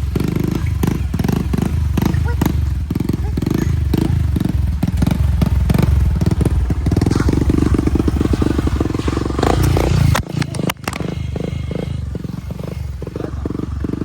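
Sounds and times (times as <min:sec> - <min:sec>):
small motorcycle engine running: 0:00.0 - 0:14.0
quiet rumble: 0:04.4 - 0:14.0
clicks: 0:08.2 - 0:11.2.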